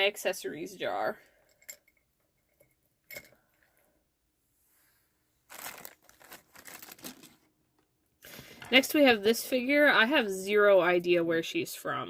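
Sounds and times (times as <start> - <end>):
plastic bag crinkling: 5.4 - 7.5.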